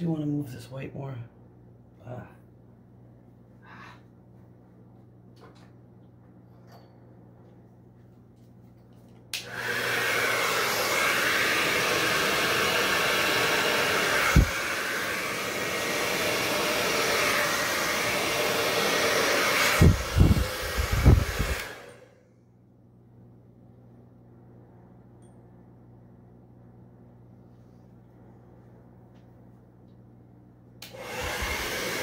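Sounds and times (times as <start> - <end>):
hair dryer switch click: 9.3 - 10.2, 19.8 - 22.0, 30.8 - 31.9
hair dryer blowing: 9.3 - 22.2, 30.8 - 32.0
air gusting on microphone: 19.8 - 21.6.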